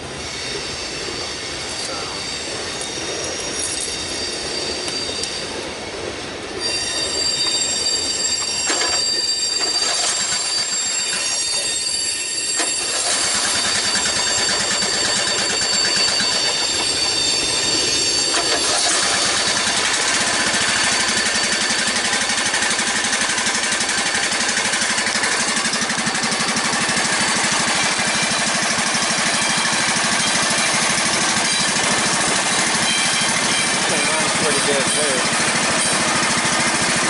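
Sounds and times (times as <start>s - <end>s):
small gasoline engine clattering: 9.6s - 11.3s, 12.6s - 16.9s, 18.3s - 37.0s.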